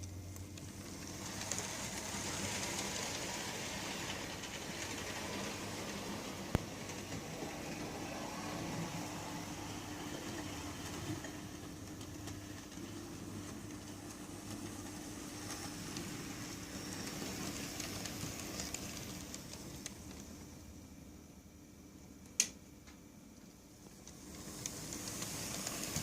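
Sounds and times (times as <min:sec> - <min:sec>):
model train motor hum: 0:00.6 - 0:11.5, 0:24.1 - 0:26.0.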